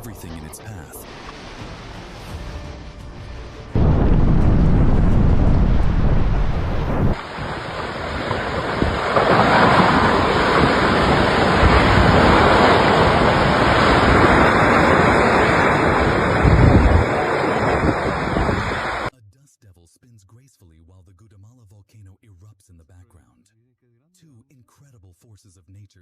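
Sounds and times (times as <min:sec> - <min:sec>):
strong wind: 0:01.1 - 0:19.1
wind buffeting microphone: 0:03.8 - 0:19.1
rushing water: 0:05.2 - 0:19.1.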